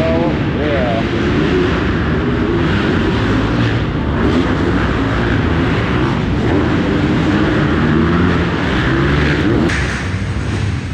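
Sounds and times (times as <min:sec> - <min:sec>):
dirt bike engines revving: 0:00.0 - 0:10.9.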